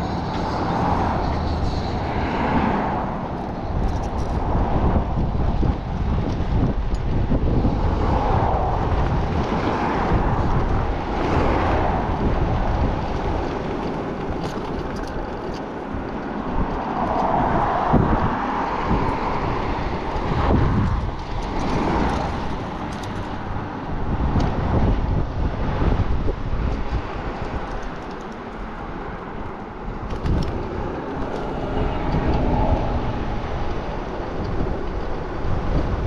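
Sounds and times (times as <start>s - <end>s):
road noise: 0.0s - 36.0s
wind buffeting microphone: 0.0s - 36.0s.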